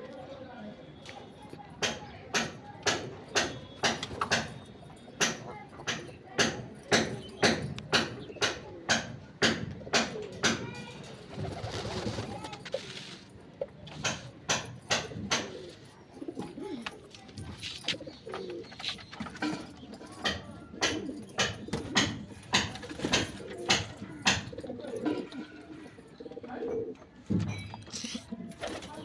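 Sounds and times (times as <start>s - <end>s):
pigeons cooing: 7.4s - 13.1s, 14.9s - 27.2s.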